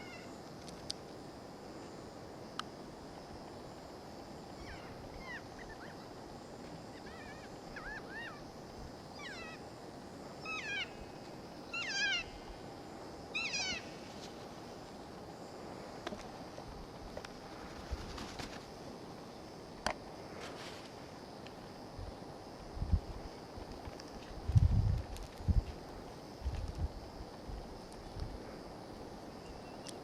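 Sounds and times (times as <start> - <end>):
kea screeching calls: 4.6 - 6.1, 6.9 - 8.5, 9.1 - 9.6, 10.4 - 12.4, 13.3 - 14.0.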